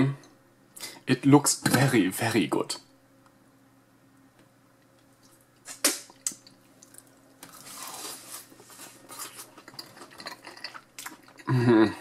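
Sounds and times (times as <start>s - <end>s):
wet chewing: 6.1s - 11.5s.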